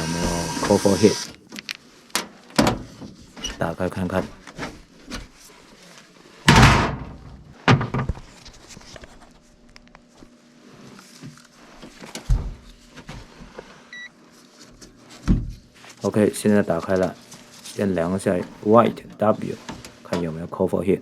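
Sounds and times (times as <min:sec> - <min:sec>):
metal door thunks and knocks: 0:06.5 - 0:08.1
handling scrapes: 0:12.8 - 0:20.2.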